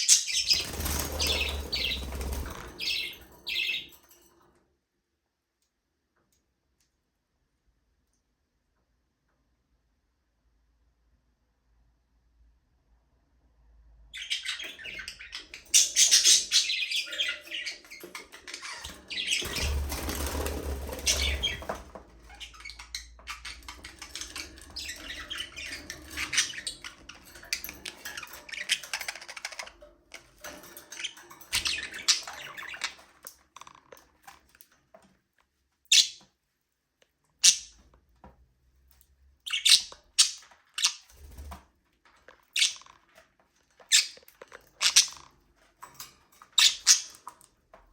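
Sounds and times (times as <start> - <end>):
budgerigars chirping: 14.2 - 29.7.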